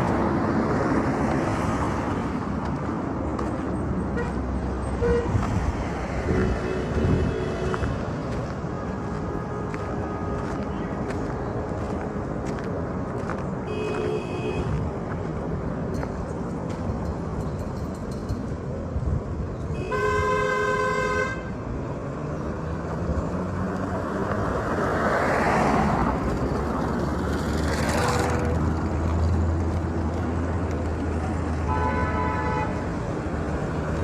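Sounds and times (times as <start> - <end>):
road traffic: 0.0 - 34.0
vehicles passing close by: 0.0 - 34.0
car horn toots: 13.7 - 14.8, 19.8 - 21.5, 31.6 - 32.8.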